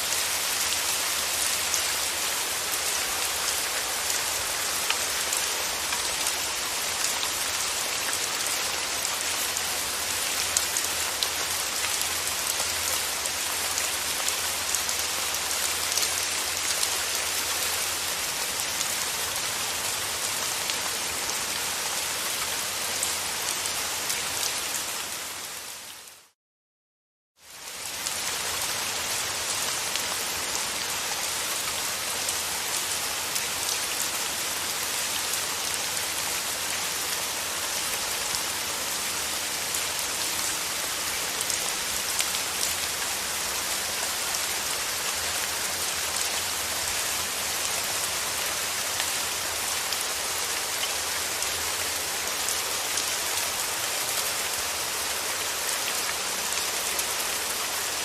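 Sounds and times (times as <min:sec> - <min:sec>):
steady rain: 0:00.0 - 0:26.4, 0:27.4 - 0:58.0.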